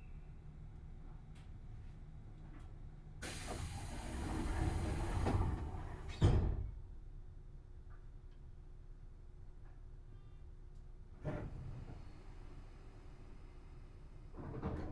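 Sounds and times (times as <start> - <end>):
rush of air from train doors: 3.2 - 6.6
doors shutting with a thud: 3.3 - 6.8.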